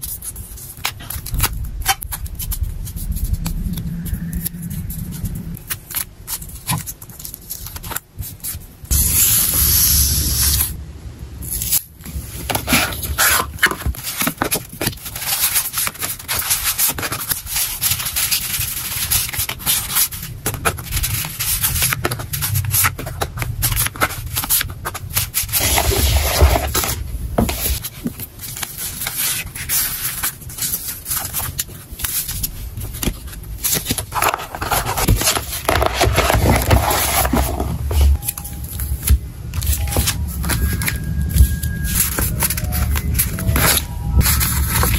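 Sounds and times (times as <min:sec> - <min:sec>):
packing materials crinkling: 0:11.6 - 0:44.9.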